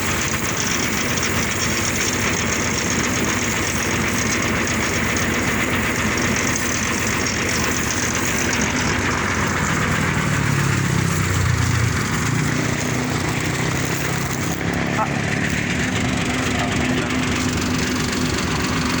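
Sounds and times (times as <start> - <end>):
vehicle engine running: 0.0 - 19.0
rushing noise: 8.5 - 18.2.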